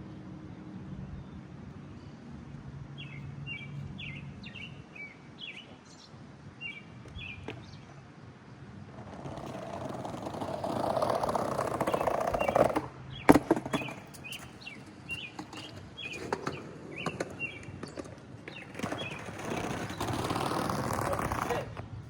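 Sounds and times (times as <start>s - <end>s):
birds chirping: 3.0s - 8.1s, 9.4s - 21.8s
skateboard wheels rolling on pavement: 5.4s - 22.0s.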